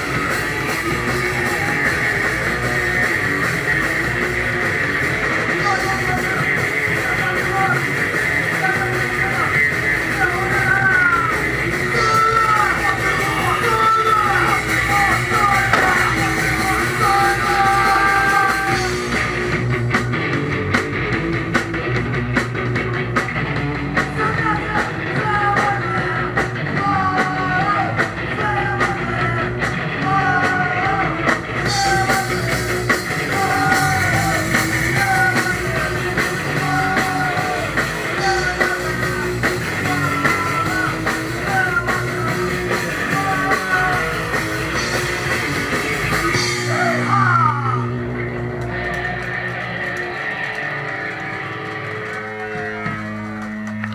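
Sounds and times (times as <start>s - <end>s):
live rock band playing: 0.0s - 53.9s
person singing: 5.6s - 19.3s, 24.0s - 45.0s, 46.0s - 48.0s.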